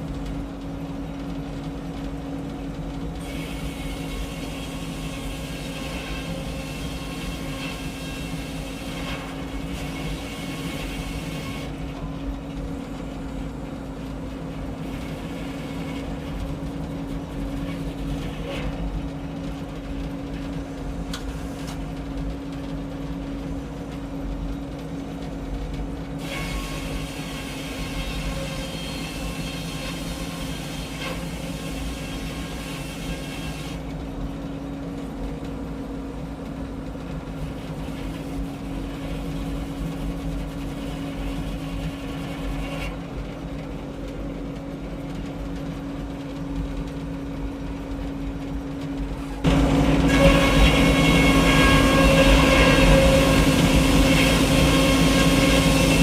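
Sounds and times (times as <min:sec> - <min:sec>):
engine drone: 0:33.7 - 0:56.0.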